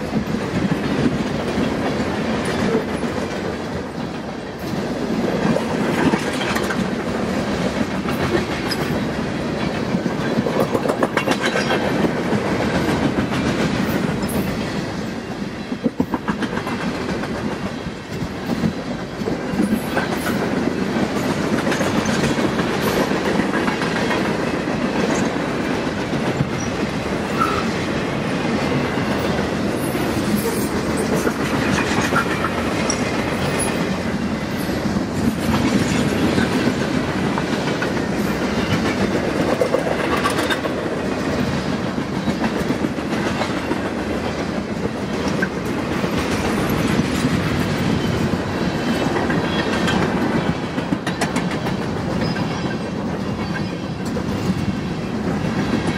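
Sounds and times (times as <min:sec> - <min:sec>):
freight train wheels rumbling: 0:00.0 - 0:55.9.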